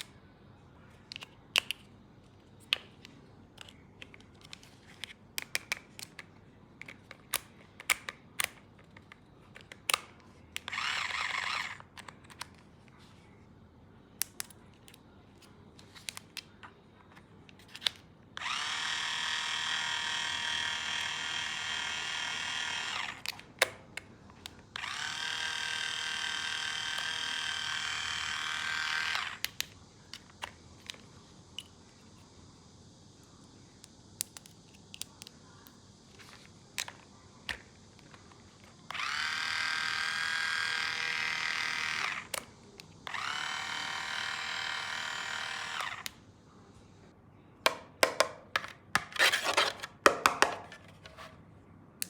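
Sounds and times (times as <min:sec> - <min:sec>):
plastic clicks and taps: 0:02.6 - 0:10.1, 0:47.7 - 0:49.1
toy drill motor whirring: 0:10.6 - 0:12.4, 0:18.4 - 0:23.5, 0:24.5 - 0:31.0, 0:36.2 - 0:46.2.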